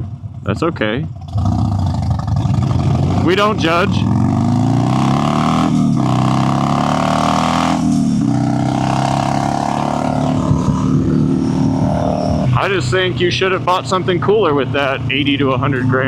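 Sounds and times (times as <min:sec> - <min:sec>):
motorcycle engine shifting gears: 0:00.0 - 0:16.0
wind rush on microphone: 0:08.1 - 0:12.7.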